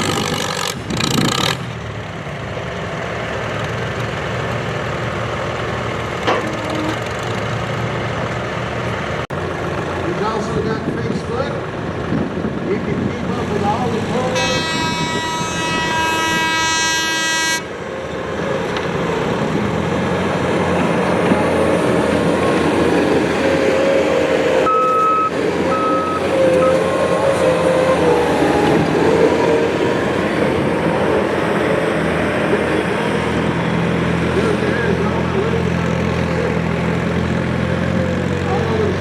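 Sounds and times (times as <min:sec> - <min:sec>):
tractor engine under load: 0:00.0 - 0:16.5, 0:17.9 - 0:39.0
horn sounding: 0:06.2 - 0:07.1, 0:14.2 - 0:17.8, 0:24.6 - 0:30.0
short high beeps: 0:24.7 - 0:26.8.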